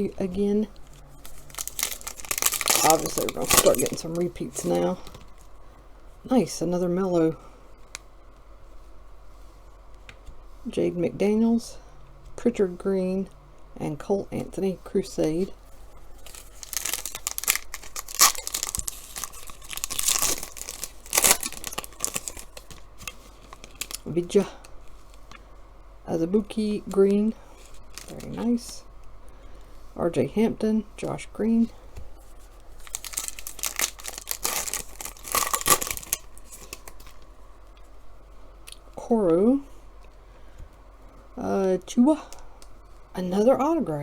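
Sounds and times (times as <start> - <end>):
wrapper crinkling and tearing: 1.1 - 5.5, 16.1 - 24.2, 27.6 - 28.4, 32.7 - 37.3.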